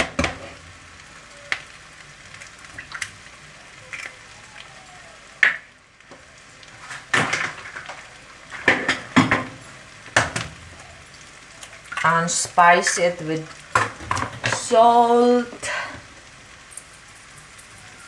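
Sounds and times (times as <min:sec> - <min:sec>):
eggs sizzling in a frying pan: 0:00.0 - 0:18.0.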